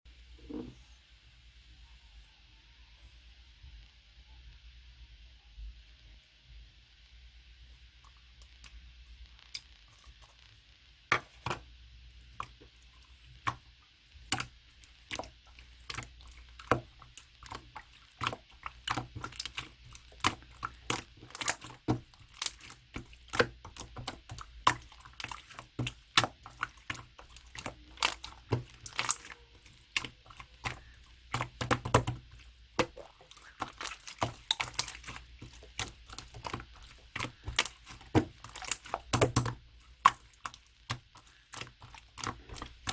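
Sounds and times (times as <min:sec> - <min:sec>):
slime squished by hand: 0:14.3 - 0:42.9.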